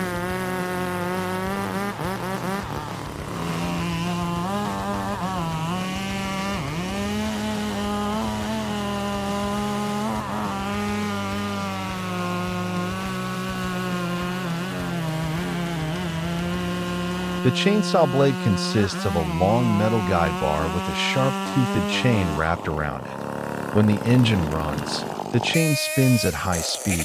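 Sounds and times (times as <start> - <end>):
chainsaw running at high speed: 0.0 - 27.0.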